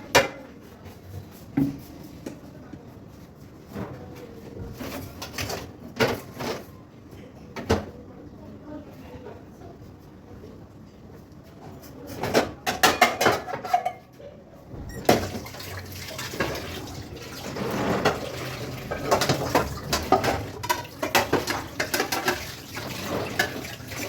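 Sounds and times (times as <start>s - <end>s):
dishes and utensils clattering: 4.7s - 6.7s, 11.7s - 14.2s, 14.9s - 24.0s
tap water running: 14.9s - 24.0s.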